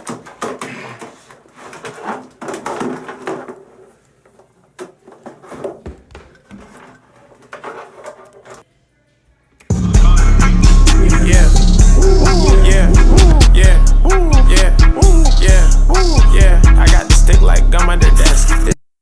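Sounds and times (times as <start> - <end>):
hip-hop beat: 9.7 - 18.8.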